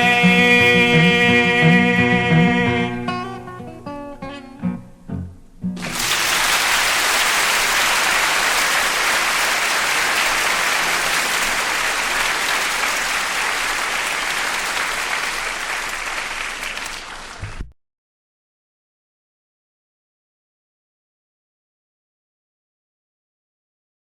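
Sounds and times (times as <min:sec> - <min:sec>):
audience applauding: 0:05.8 - 0:17.7.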